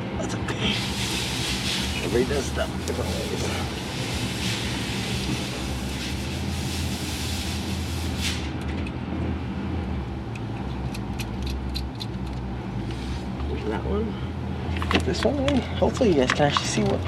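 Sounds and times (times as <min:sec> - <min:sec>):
low mechanical hum: 0:00.0 - 0:17.0
hiss: 0:00.6 - 0:08.6.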